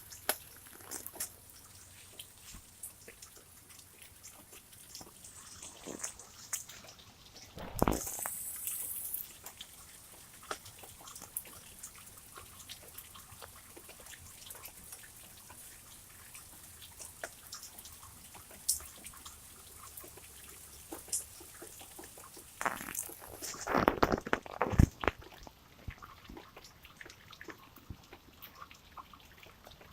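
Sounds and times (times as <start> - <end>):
drops ticking and dripping: 0.0 - 29.9.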